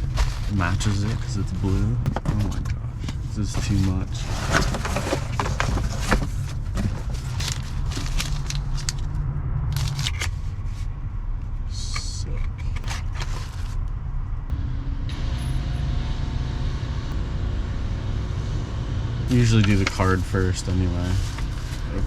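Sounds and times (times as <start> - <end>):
packaging rustling and crinkling: 0.0 - 1.7, 3.6 - 9.1
low vehicle rumble: 0.0 - 22.0.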